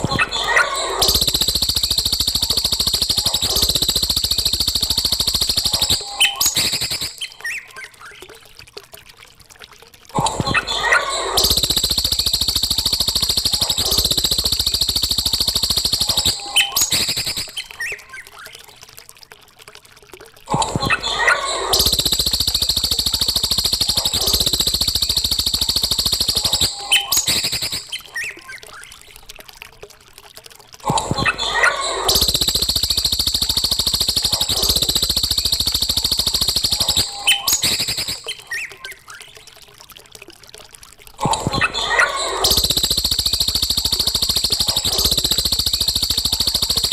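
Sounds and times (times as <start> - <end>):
fast rattling bird trill: 0.0 - 7.6, 10.7 - 18.1, 21.0 - 28.4, 31.2 - 39.0, 41.5 - 46.9.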